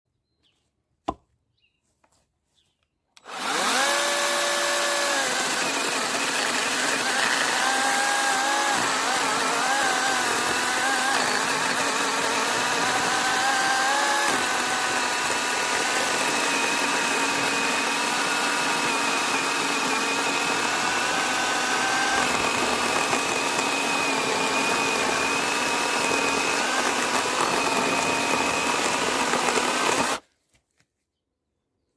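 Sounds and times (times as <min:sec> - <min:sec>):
chainsaw running with a whine: 0:03.2 - 0:30.2.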